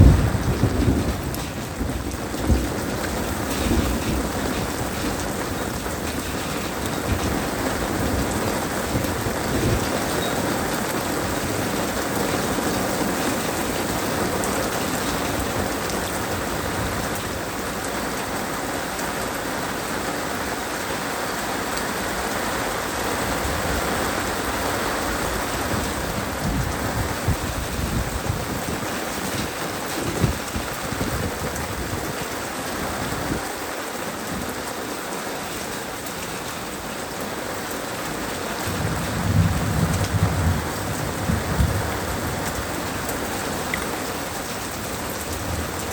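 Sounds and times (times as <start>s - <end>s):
thunder rumbling: 0.0s - 17.8s, 23.1s - 33.5s, 38.5s - 45.9s
heavy rain falling: 0.0s - 45.9s.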